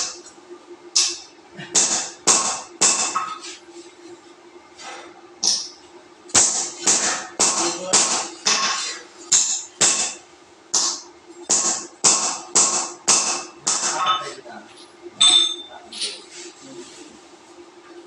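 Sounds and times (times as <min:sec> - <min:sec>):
faint steady hum: 0:00.0 - 0:18.0
metal being struck: 0:15.2 - 0:15.7.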